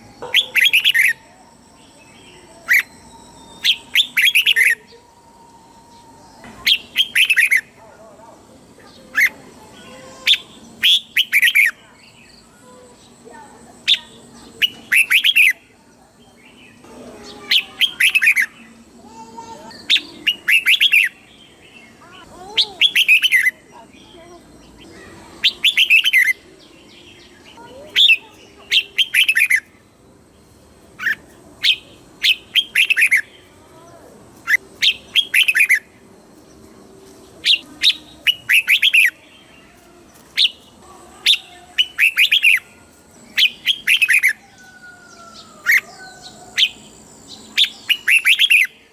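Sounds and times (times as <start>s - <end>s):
bird singing whistled phrases: 0.0s - 7.8s, 10.1s - 12.5s, 13.9s - 15.6s, 17.4s - 18.7s, 19.7s - 24.1s, 24.8s - 29.7s, 31.0s - 33.3s, 34.4s - 35.9s, 37.4s - 39.3s, 41.3s - 48.9s.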